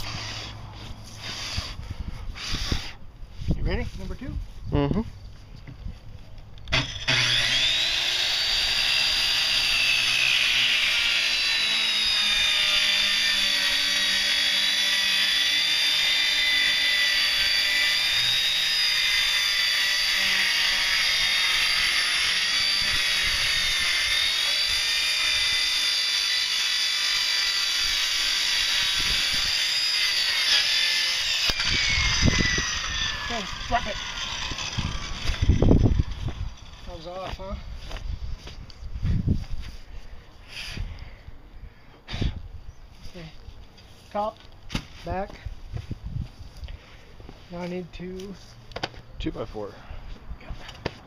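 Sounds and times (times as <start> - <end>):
electric power saw cutting wood: 0.0 - 3.0, 6.7 - 38.0.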